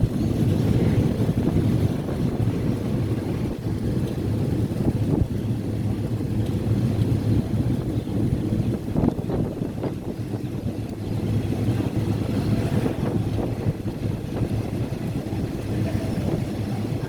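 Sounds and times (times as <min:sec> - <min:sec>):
moving train rumbling: 0:00.0 - 0:17.0
wind buffeting microphone: 0:00.0 - 0:17.0.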